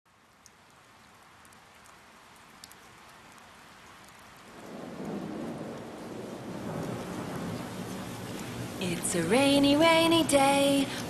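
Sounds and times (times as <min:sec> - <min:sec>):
raindrop ticks: 0:00.1 - 0:11.0
steady rain: 0:00.1 - 0:11.0
rolling thunder rumble: 0:04.6 - 0:10.3.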